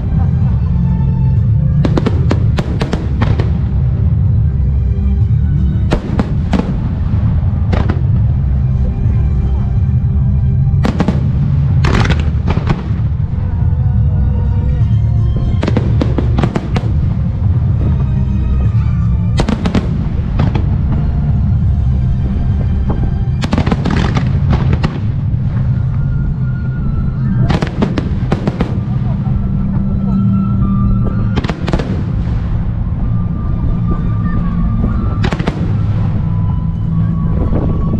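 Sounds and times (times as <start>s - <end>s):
sharp crackling: 0.0s - 4.8s, 5.4s - 37.9s
deep rumble: 0.0s - 37.9s
music: 0.0s - 37.9s
firework shells bursting: 15.3s - 25.8s.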